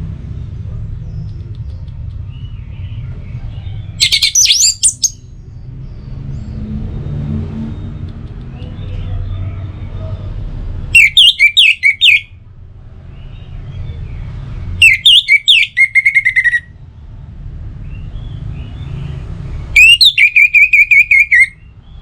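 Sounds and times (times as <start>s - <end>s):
bird singing whistled notes: 4.0s - 5.2s, 11.0s - 12.3s, 14.8s - 16.7s, 19.8s - 21.6s.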